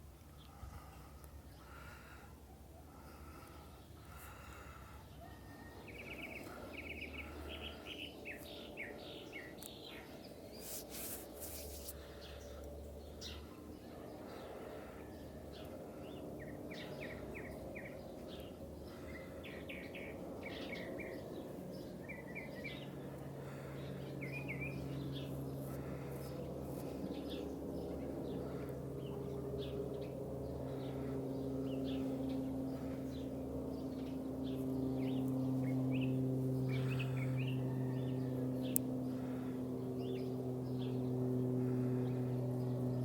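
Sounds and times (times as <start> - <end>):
distant jet engines drone: 0.0 - 43.0
small birds chirping: 0.0 - 43.0.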